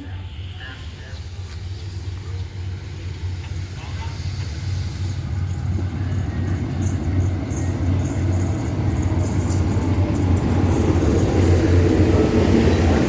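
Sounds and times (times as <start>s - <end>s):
diesel locomotive engine drone: 0.0s - 13.0s.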